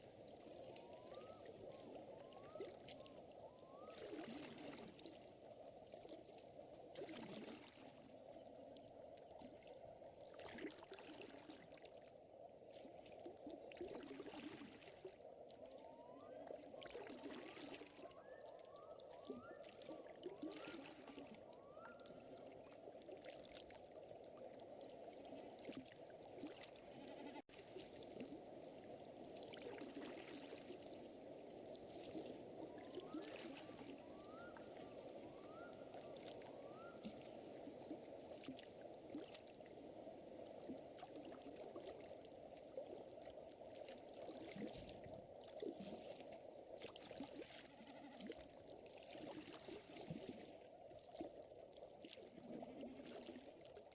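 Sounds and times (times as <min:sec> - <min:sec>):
lake water lapping: 0:19.0 - 0:53.9.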